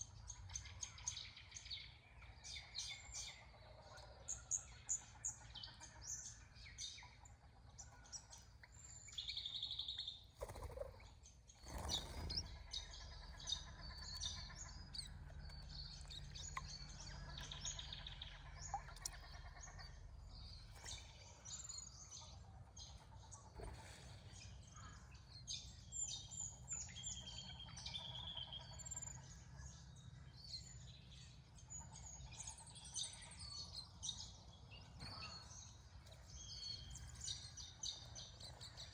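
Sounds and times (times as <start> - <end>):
small birds chirping and trilling: 0.0 - 38.9.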